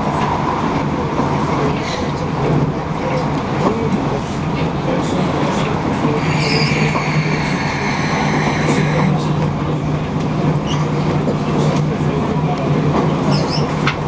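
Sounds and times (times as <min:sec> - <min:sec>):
train rumble inside carriage: 0:00.0 - 0:14.0
high whine: 0:06.0 - 0:09.5.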